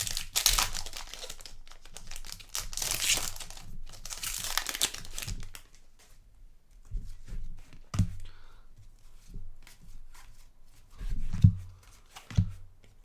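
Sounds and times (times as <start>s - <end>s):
plastic wrapper crinkling: 0.0s - 5.9s.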